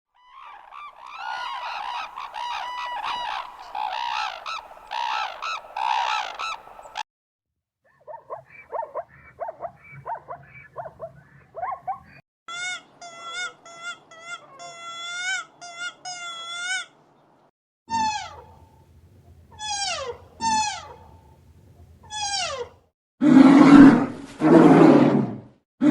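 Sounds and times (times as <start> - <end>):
clear pitched animal calls: 0.2 - 7.0, 17.9 - 18.8, 19.5 - 21.3, 22.0 - 22.8
overlapping animal calls: 0.2 - 7.0, 19.5 - 21.3
calls falling in pitch: 0.3 - 7.0.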